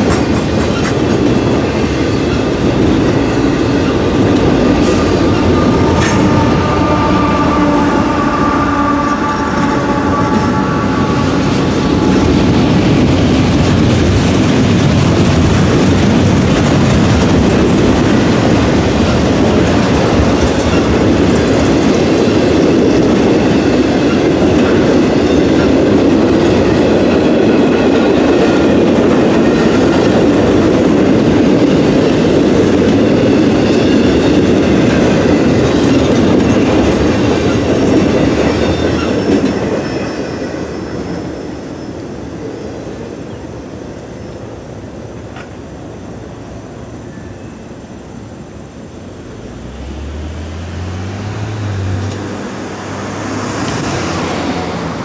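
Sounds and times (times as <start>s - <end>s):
freight train clacking over rail joints: 0.0s - 50.3s, 51.0s - 55.0s
car engine accelerating: 49.2s - 55.0s.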